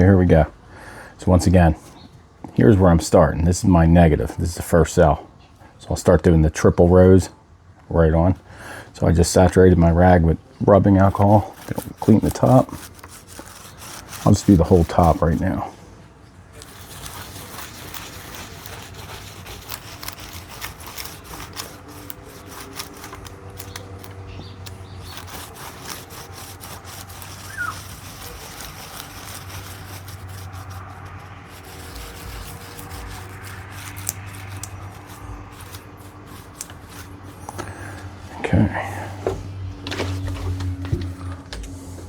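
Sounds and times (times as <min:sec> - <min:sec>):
rag wiping scratchily: 0:10.7 - 0:15.8, 0:16.6 - 0:38.4.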